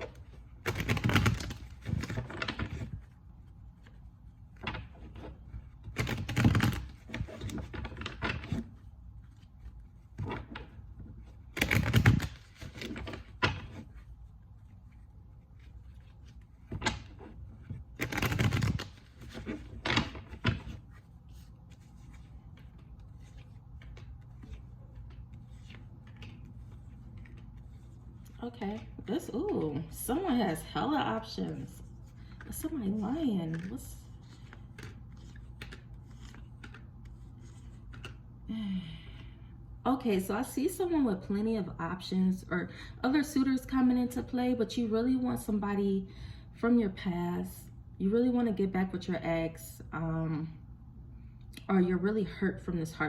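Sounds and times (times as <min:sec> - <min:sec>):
cards being shuffled: 0:00.0 - 0:30.3, 0:31.8 - 0:38.3
cards tapping and flicking: 0:18.0 - 0:20.8, 0:34.4 - 0:38.2.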